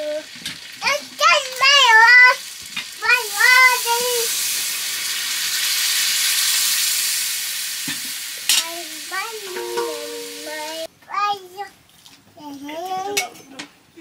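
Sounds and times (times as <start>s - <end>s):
food sizzling in a pan: 0.0s - 10.9s.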